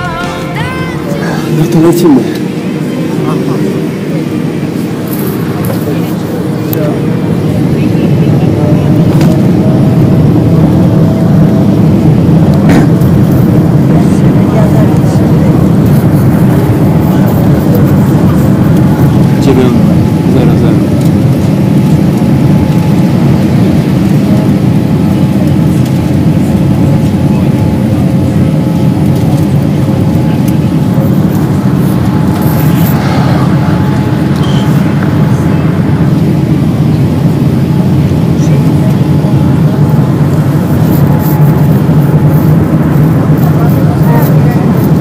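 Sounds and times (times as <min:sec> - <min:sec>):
jet engine and airflow noise: 0:00.0 - 0:45.0
faint whistling tones: 0:34.3 - 0:34.9.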